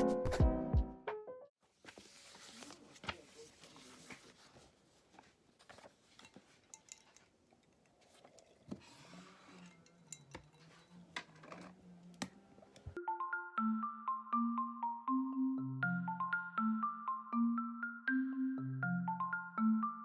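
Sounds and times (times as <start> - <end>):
marimba background music: 13.0 - 20.0.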